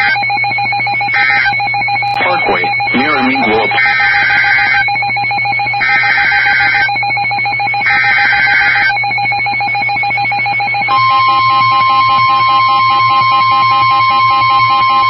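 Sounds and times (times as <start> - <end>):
steady warning alarm tone: 0.0 - 15.0
steady hum: 1.6 - 4.0.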